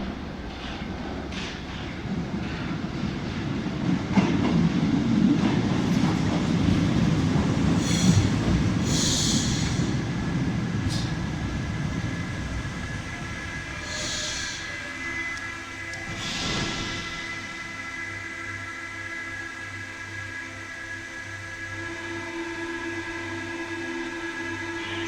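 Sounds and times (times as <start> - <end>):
train rumbling on rails: 0.0 - 25.0
high-pitched wheel squeals: 13.6 - 16.4.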